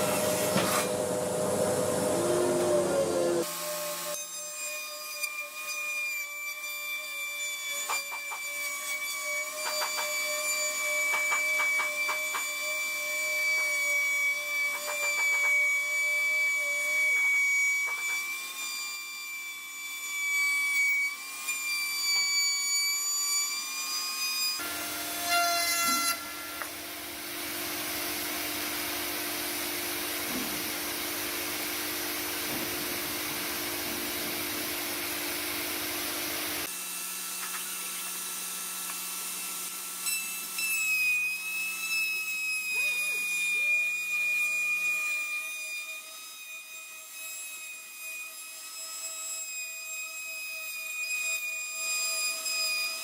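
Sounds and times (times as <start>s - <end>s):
power tool whining: 0.0s - 4.5s, 24.6s - 44.0s.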